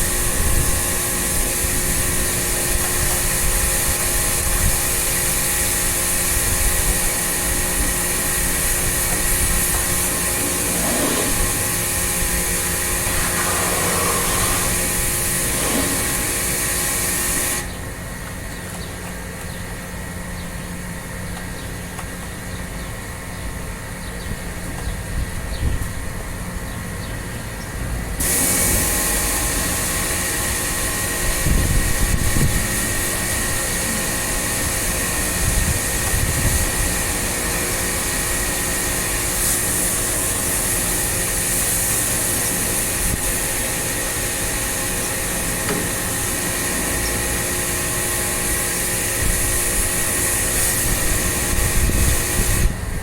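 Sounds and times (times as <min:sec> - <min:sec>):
loud rushing hiss: 0:00.0 - 0:17.7, 0:28.2 - 0:52.8
motor humming: 0:08.2 - 0:18.0.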